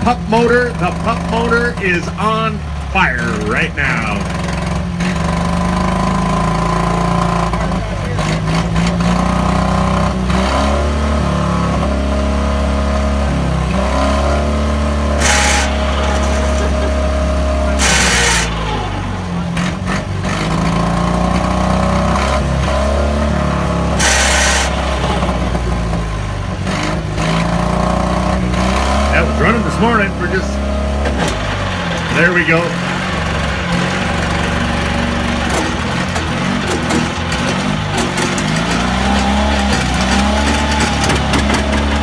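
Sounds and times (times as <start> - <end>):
small petrol starting motor running: 13.7 - 42.0
short loud hisses: 15.2 - 19.4.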